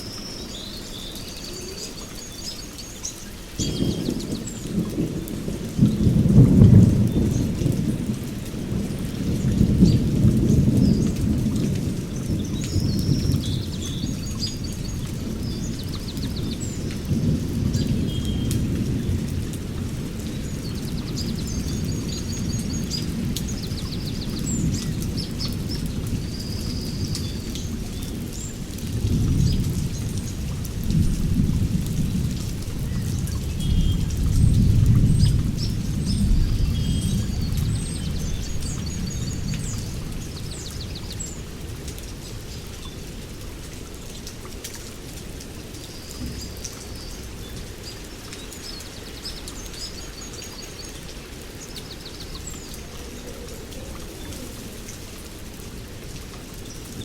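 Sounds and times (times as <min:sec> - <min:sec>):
small birds chirping: 0:00.0 - 0:05.3, 0:20.2 - 0:30.5, 0:32.9 - 0:41.6, 0:45.8 - 0:55.3
steady rain: 0:00.0 - 0:57.0
thunder rumbling: 0:03.6 - 0:41.9.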